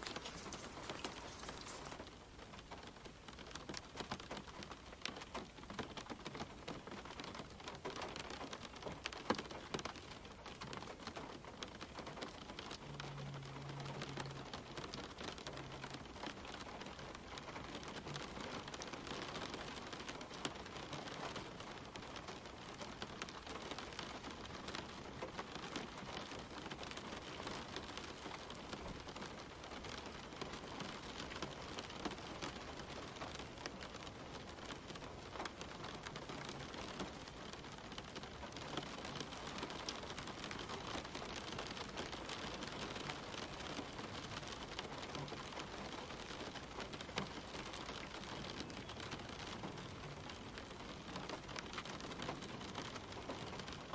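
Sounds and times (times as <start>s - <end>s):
faint low hum: 0.0s - 2.1s
rain falling on leaves: 0.0s - 53.9s
raindrops pattering: 0.0s - 53.9s.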